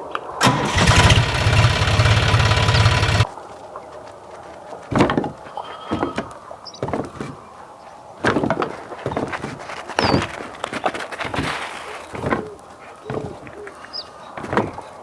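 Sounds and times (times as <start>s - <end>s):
knocks and clatters: 0.9s - 3.2s, 4.9s - 7.4s, 8.2s - 13.6s, 14.3s - 15.0s.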